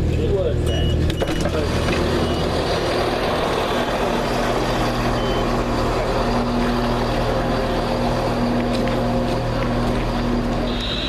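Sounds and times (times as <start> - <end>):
diesel train engine idling: 0.0 - 11.0.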